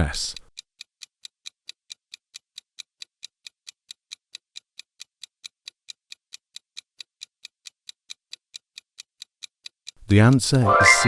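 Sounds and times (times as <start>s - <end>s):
countdown timer ticking: 10.1s - 11.0s.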